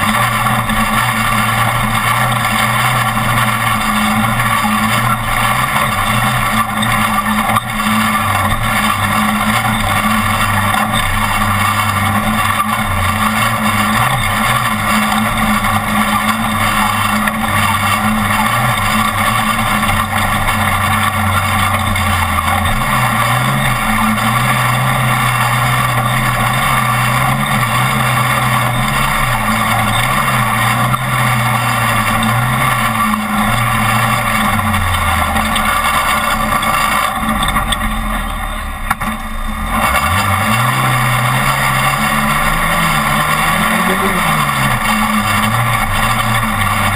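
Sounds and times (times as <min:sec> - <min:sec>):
road and rattle noise: 0:00.0 - 0:46.9
truck engine running hard: 0:00.0 - 0:46.9.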